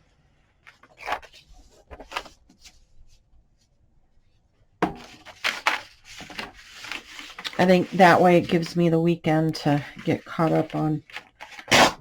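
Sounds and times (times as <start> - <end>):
paper rustling: 0.7 - 3.7, 5.0 - 8.9, 9.7 - 12.0.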